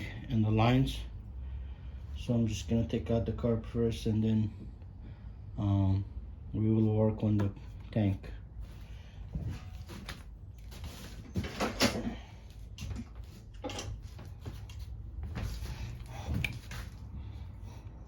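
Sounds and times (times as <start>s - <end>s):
low steady hum: 0.0s - 18.0s
parts clattering: 8.8s - 17.2s
tools and parts clicking and knocking: 12.8s - 14.8s.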